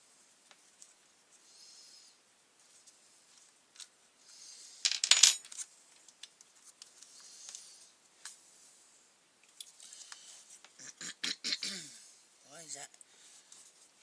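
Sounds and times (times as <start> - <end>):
small metal parts jingling: 4.8 - 5.6.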